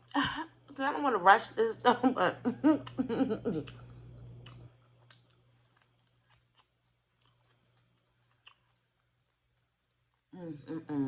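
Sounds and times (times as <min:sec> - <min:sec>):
low hum: 0:00.0 - 0:11.0
chewing crispy food: 0:02.8 - 0:10.7.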